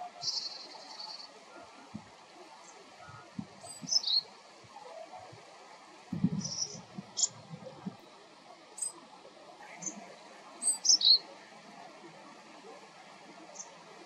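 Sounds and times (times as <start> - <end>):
songbird chirping: 0.2 - 1.7, 2.6 - 4.4, 9.6 - 11.3, 13.4 - 13.8.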